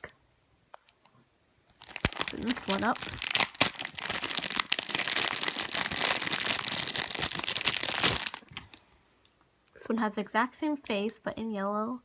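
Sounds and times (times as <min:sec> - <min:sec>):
plastic packaging crinkling: 0:01.7 - 0:08.8.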